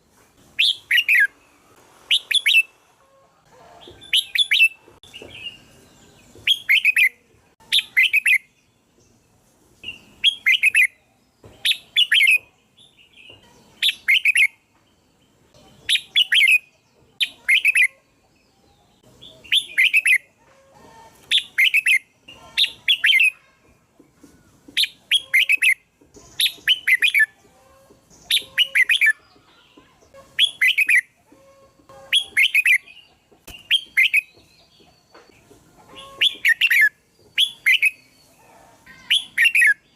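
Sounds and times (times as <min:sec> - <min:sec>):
bird chirping: 0:00.6 - 0:02.8, 0:03.8 - 0:20.4, 0:21.1 - 0:23.6, 0:24.4 - 0:39.9.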